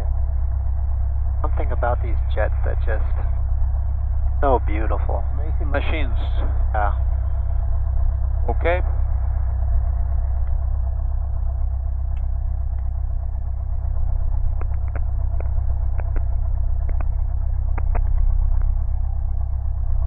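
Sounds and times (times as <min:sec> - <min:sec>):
propeller aircraft engine droning: 0:00.0 - 0:20.0
faint clicks: 0:14.5 - 0:18.8.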